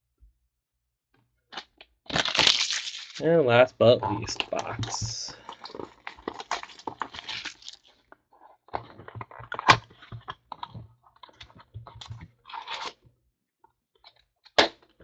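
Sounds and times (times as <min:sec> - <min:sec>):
plastic wrap crinkling: 0:02.1 - 0:03.3, 0:03.9 - 0:08.0.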